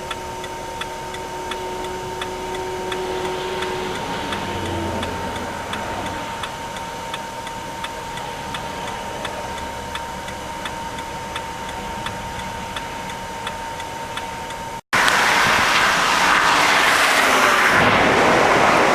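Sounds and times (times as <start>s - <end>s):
regular ticking: 0.0s - 14.8s
thin high hum: 0.0s - 18.1s.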